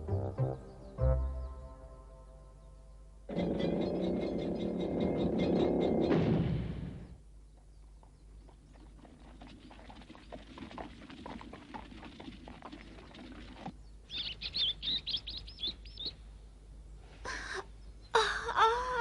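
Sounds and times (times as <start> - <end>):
cartoon birds chirping: 3.3 - 6.2, 14.1 - 16.2.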